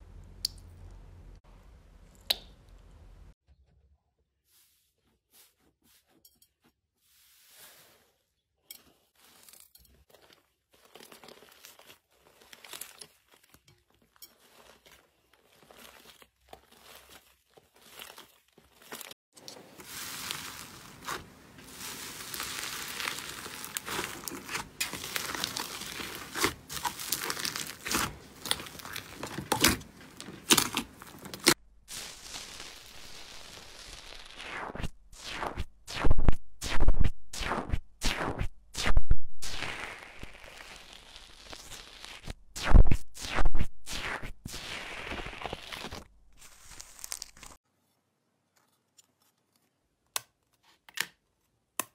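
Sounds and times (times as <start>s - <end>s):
slime squeezed crackling and popping: 20.0s - 21.2s, 21.8s - 35.5s, 39.4s - 47.6s.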